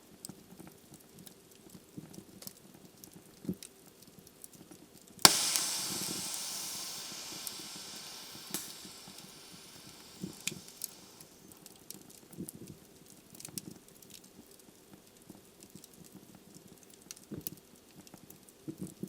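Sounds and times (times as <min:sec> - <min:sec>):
log popping: 0:05.3 - 0:11.2
wood fire crackling: 0:05.3 - 0:11.3
hiss from fire: 0:05.3 - 0:11.4.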